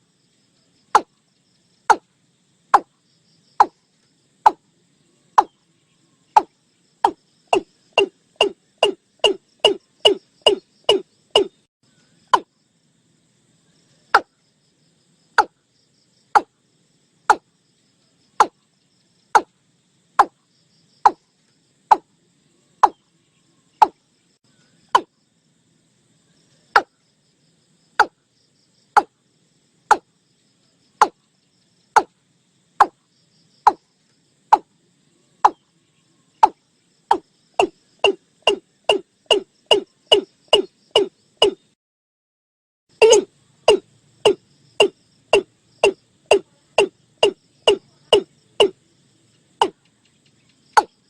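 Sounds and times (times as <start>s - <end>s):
bird calling descending notes: 43.0s - 44.4s.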